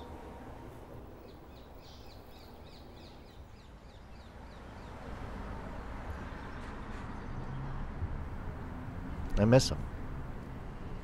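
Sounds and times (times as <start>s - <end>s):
birds chirping: 1.1s - 7.9s.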